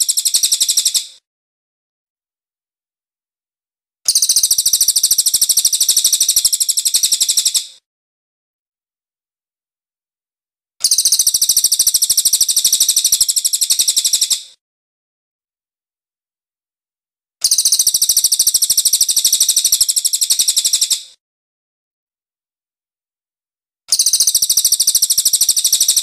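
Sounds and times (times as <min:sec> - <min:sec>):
bird rattling trills: 0:00.0 - 0:01.0.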